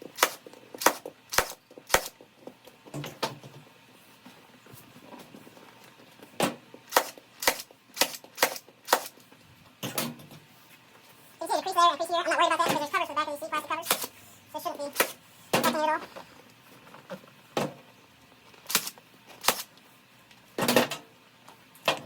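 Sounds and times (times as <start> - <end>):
staple gun firing: 6.9 - 9.2.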